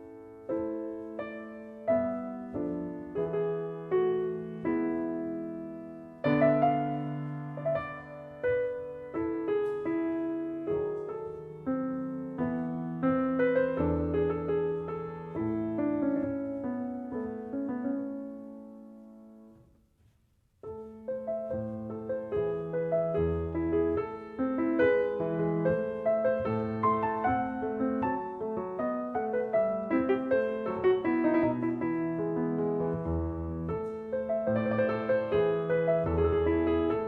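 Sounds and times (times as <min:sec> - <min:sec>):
piano music: 0:00.0 - 0:37.0.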